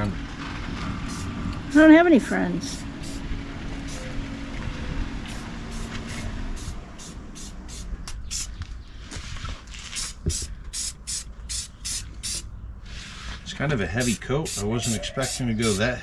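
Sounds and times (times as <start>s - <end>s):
paint spraying hiss: 1.1s - 3.2s, 3.8s - 4.2s, 5.2s - 8.5s, 9.9s - 12.4s, 14.0s - 15.9s.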